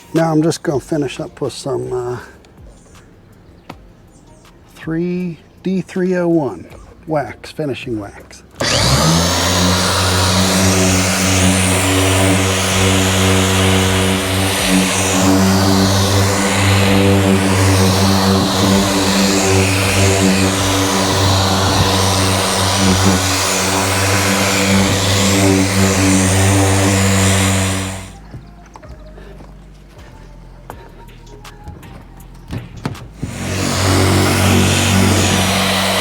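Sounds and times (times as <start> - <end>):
electric polisher motor hum: 8.6 - 28.4, 33.2 - 36.0.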